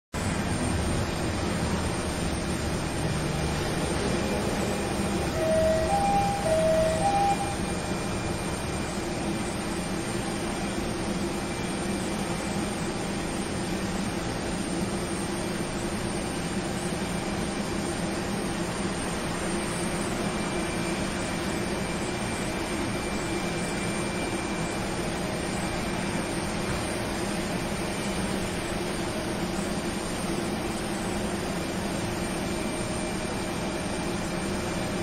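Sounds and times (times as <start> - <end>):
steady mechanical rumble: 0.2 - 35.0
two-note electronic chime: 5.3 - 7.7.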